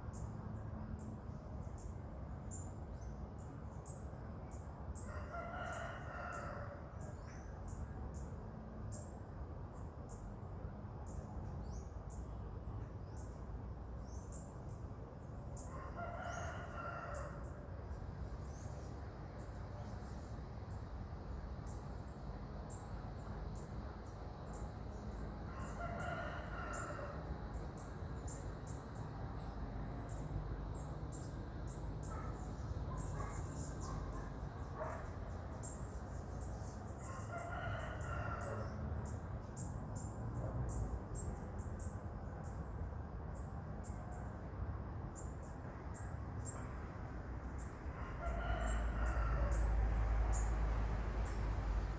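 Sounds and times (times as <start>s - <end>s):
rooster crowing: 5.0s - 6.9s, 15.7s - 17.5s, 25.5s - 27.3s, 37.0s - 38.8s, 47.9s - 50.4s.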